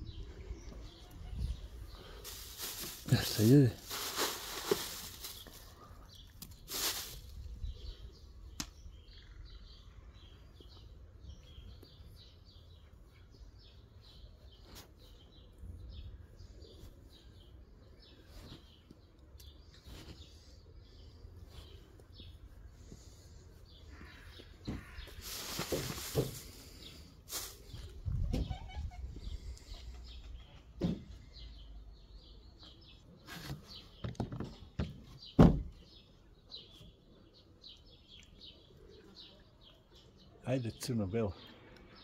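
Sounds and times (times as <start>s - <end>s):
small birds chirping: 0.0s - 42.0s
rustling: 1.4s - 7.5s, 21.4s - 28.2s.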